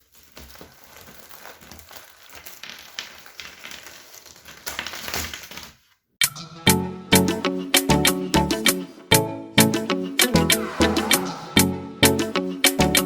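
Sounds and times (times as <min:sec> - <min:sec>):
puzzle pieces shuffled by hand: 0:00.0 - 0:05.9.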